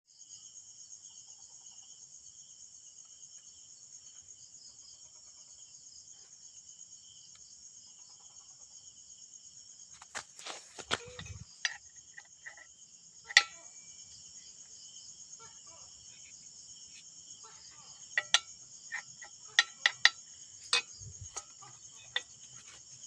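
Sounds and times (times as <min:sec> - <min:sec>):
insects chirring: 0:00.1 - 0:23.0
sharp clicks and knocks: 0:13.3 - 0:13.6, 0:18.1 - 0:22.8.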